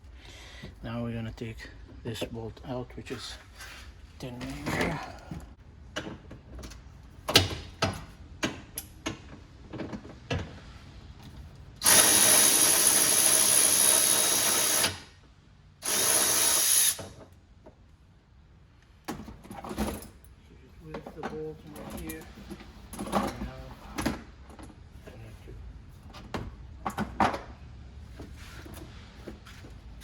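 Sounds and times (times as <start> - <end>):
power drill spinning out bolt: 11.8 - 15.0, 15.8 - 17.2.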